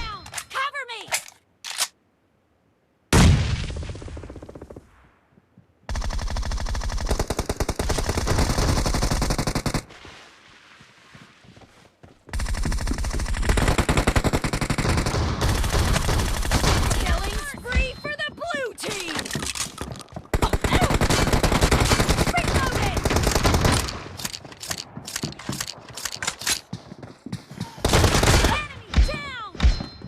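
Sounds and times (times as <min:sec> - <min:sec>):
rapid automatic gunfire: 0:05.9 - 0:09.8, 0:12.4 - 0:17.4, 0:20.3 - 0:24.2, 0:27.8 - 0:28.5.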